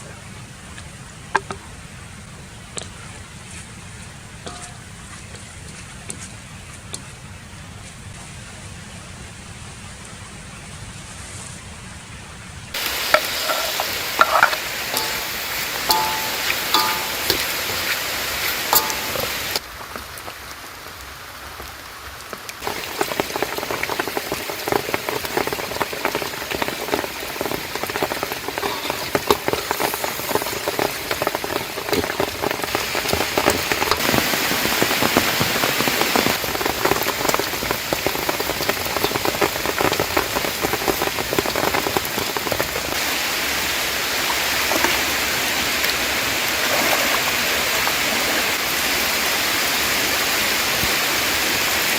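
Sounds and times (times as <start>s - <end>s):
rain pattering: 12.4s - 51.9s.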